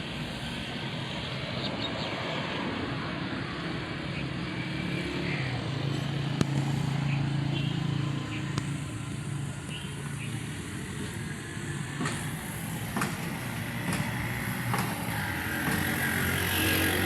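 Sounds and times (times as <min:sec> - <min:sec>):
tractor engine running: 0:06.2 - 0:17.0.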